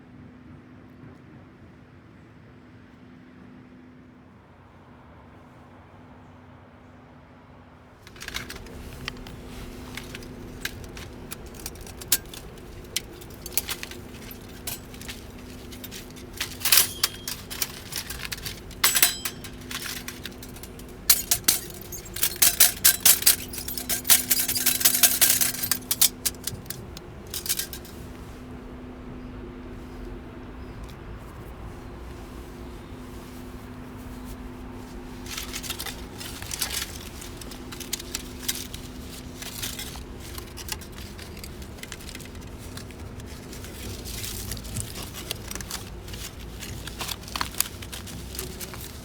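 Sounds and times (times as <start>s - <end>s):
small metal objects clinking: 8.1s - 28.3s, 35.0s - 49.0s.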